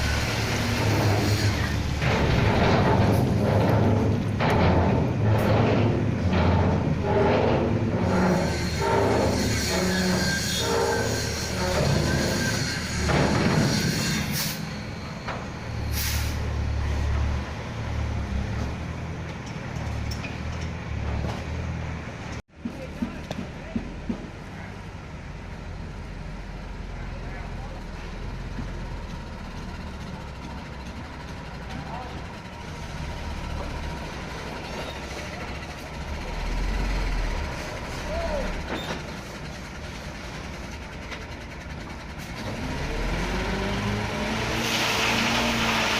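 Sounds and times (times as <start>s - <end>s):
diesel truck engine rumbling: 0.0s - 45.9s
air brake hisses: 13.8s - 14.8s, 15.9s - 16.5s.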